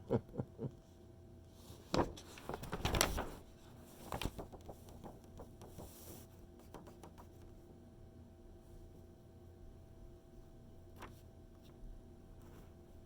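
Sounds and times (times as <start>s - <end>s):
magazine page rustling: 1.6s - 6.0s
faint paper clicks: 1.6s - 7.6s, 10.9s - 12.7s.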